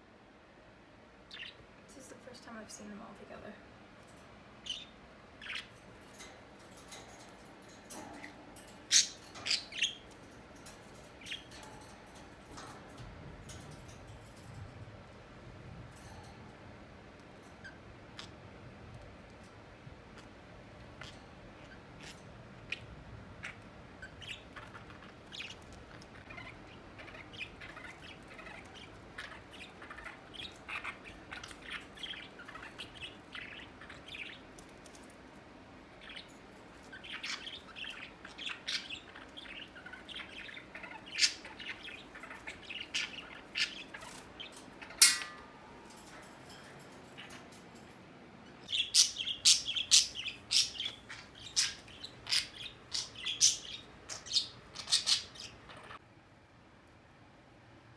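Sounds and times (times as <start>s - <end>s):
parrots chirping and chattering: 1.3s - 1.6s, 3.8s - 56.0s.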